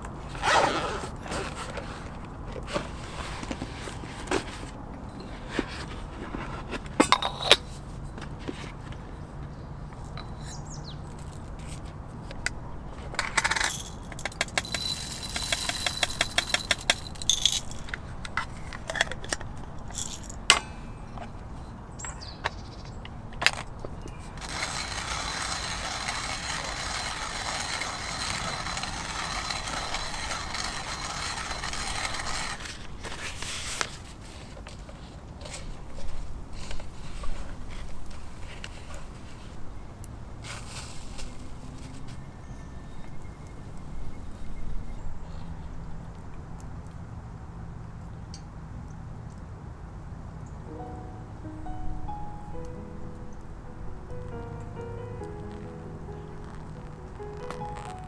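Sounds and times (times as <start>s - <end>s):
small metal items clinking: 13.1s - 21.4s, 23.4s - 33.7s, 54.3s - 58.0s
quick clicks: 54.3s - 58.0s.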